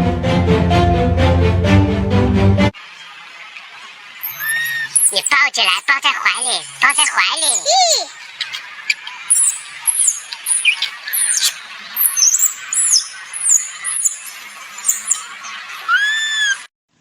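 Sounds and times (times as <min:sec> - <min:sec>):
animal squeal: 0:04.2 - 0:16.7
shrill animal chirps: 0:04.2 - 0:16.7.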